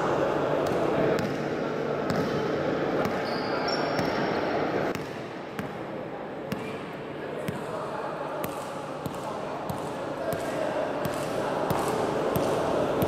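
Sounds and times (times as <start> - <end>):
crowd chatter: 0.0 - 13.0
basketball bouncing: 4.9 - 5.8.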